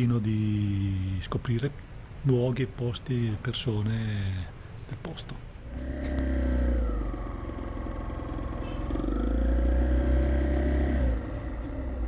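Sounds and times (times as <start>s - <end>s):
motorcycle engine revving: 5.6s - 12.0s.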